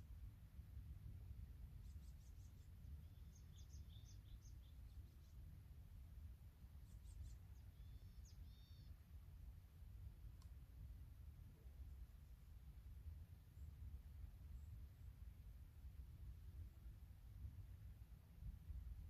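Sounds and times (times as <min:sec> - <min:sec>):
low outdoor rumble: 0:00.0 - 0:19.0
small bird chirping: 0:01.8 - 0:05.5, 0:06.7 - 0:09.0.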